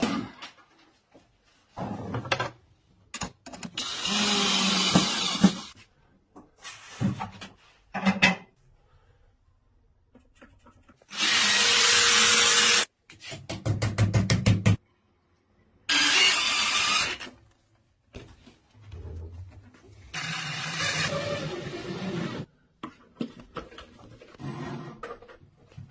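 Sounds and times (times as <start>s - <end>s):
power drill running: 3.8s - 5.7s, 11.1s - 12.9s, 15.9s - 17.3s, 20.2s - 22.4s.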